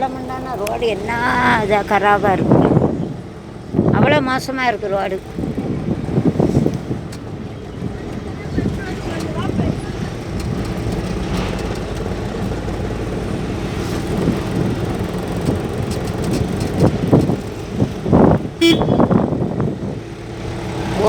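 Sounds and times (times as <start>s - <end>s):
car engine and road rumble: 0.0s - 21.0s
car horn toot: 18.6s - 19.5s.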